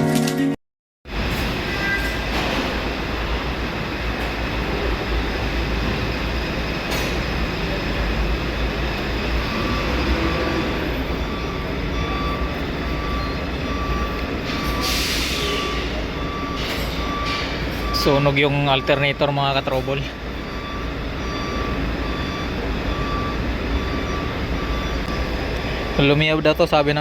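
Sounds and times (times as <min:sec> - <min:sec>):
diesel truck engine rumbling: 0:01.1 - 0:27.0
short electronic beeps: 0:09.4 - 0:26.0.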